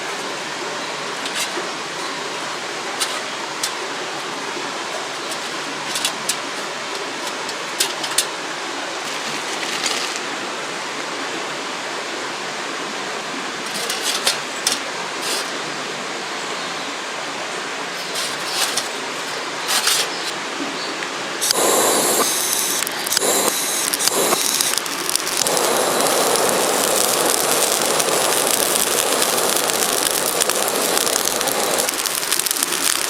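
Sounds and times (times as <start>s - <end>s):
river rushing over rocks: 17.0s - 33.0s.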